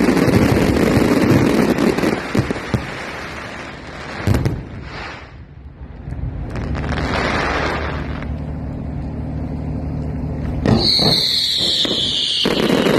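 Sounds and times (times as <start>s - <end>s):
firework bangs: 0.0s - 8.6s, 10.4s - 12.9s
low rumble: 3.3s - 10.8s
falling firework whistle: 10.6s - 12.9s.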